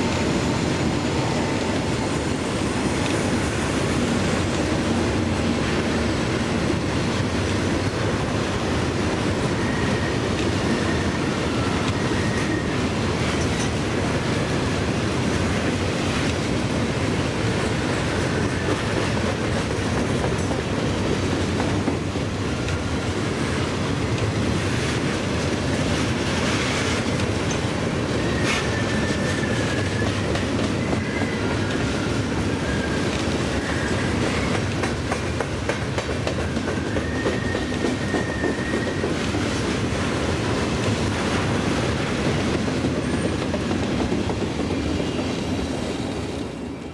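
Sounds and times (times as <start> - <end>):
train wheels clattering on track: 0.0 - 46.9
high wheel squeals: 9.5 - 13.5, 23.2 - 34.7, 36.4 - 43.9.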